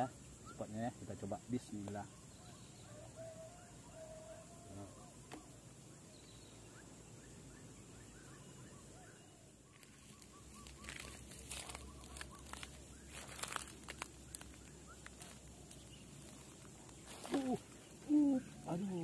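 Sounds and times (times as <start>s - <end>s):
bird chirping: 0.0s - 19.0s
crackling rustles: 9.6s - 19.0s.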